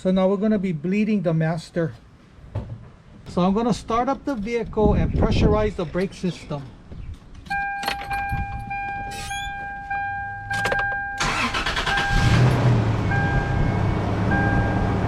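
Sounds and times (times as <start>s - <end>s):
dashboard warning chime: 7.5s - 15.0s
engine cranking and idling: 10.5s - 13.7s.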